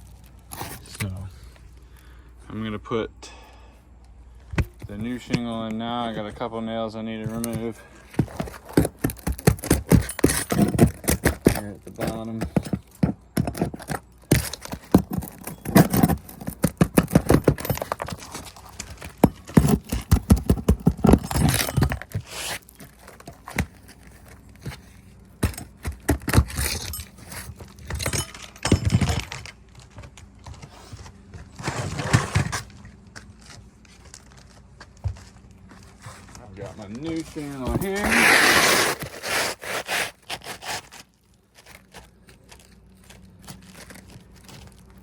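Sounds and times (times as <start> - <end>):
metal tool scraping nails: 7.3 - 24.0, 24.6 - 29.4, 37.6 - 41.0.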